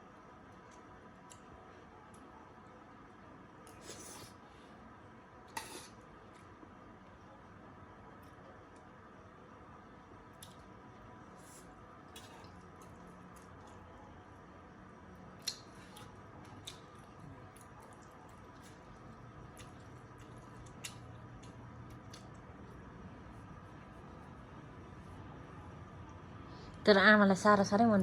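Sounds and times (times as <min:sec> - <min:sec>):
faint room hum: 0:00.0 - 0:28.0
eating sounds: 0:15.3 - 0:22.8.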